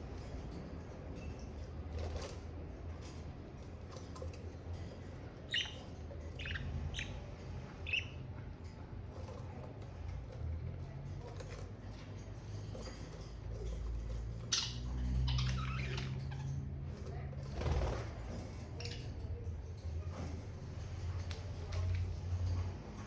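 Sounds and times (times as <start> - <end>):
budgerigars chirping: 5.5 - 8.2.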